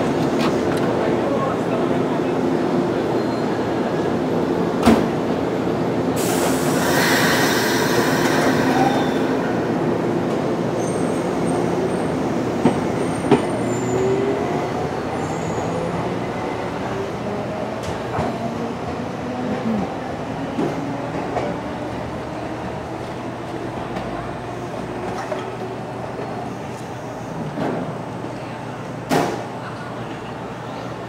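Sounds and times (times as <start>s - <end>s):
loud air hiss: 6.2s - 9.3s
train clanks: 12.5s - 14.1s.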